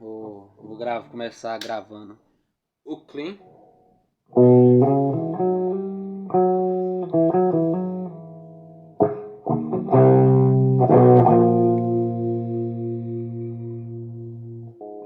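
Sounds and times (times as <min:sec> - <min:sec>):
electric guitar playing: 0:03.4 - 0:15.0.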